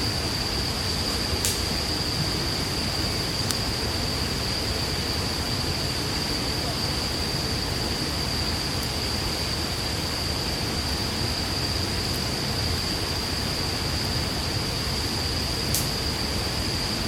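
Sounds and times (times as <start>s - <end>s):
campfire hissing: 0.0s - 17.0s
fire pops: 1.0s - 2.0s, 3.4s - 3.7s, 15.7s - 16.0s.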